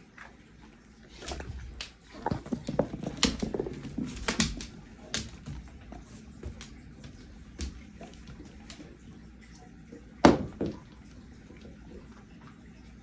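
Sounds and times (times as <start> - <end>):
clicks and knocks from dog moving: 1.2 - 8.9.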